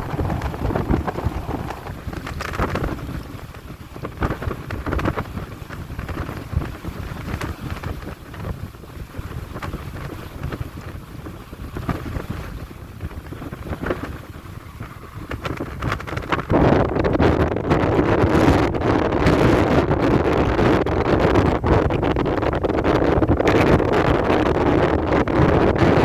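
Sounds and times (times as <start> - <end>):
wind buffeting thumps: 0.0 - 26.0
wind gusting across microphone: 0.0 - 26.0.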